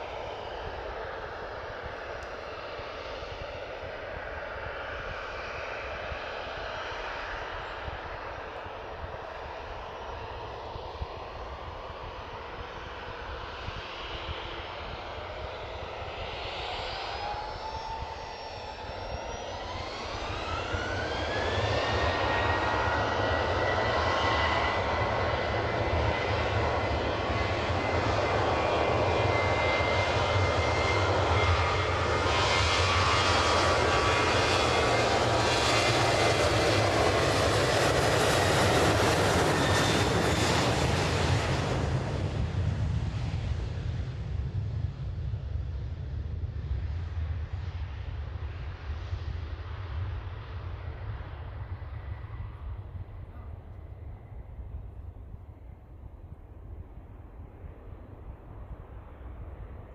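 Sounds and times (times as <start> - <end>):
jet engines spooling up: 10.0 - 44.0.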